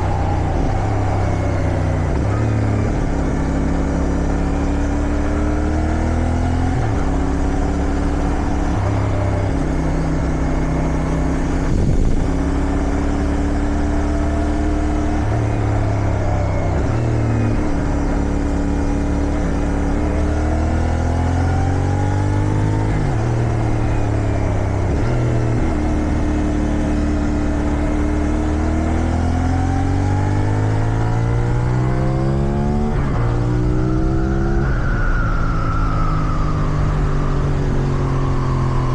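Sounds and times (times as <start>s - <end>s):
motorcycle engine accelerating: 0.0s - 38.9s
wind noise: 10.7s - 13.0s.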